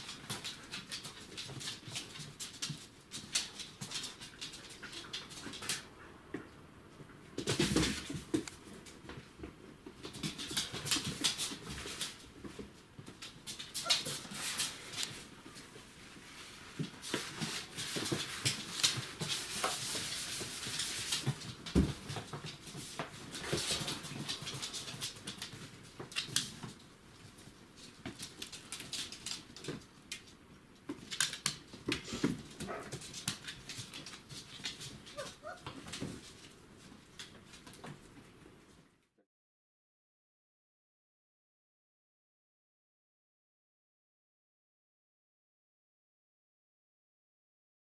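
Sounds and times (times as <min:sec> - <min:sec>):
puppies scuffling: 0:00.0 - 0:38.9
puppies whimpering and squeaking: 0:13.8 - 0:14.4, 0:35.1 - 0:35.8.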